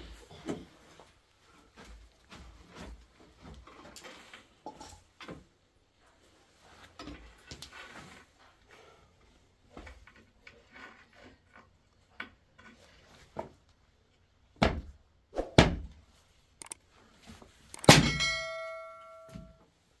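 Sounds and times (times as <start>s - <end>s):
loud metallic clang ringing: 17.8s - 19.5s.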